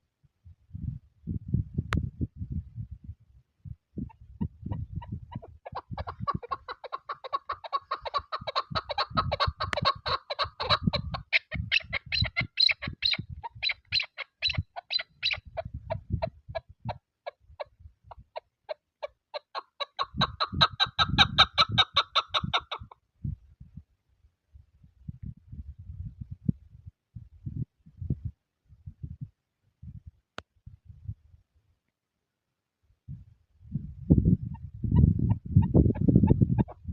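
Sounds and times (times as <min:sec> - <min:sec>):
wind buffeting microphone: 0:00.4 - 0:18.4, 0:20.0 - 0:31.4, 0:33.1 - 0:36.9
partridge clucking chatter: 0:05.0 - 0:15.6, 0:18.7 - 0:22.9.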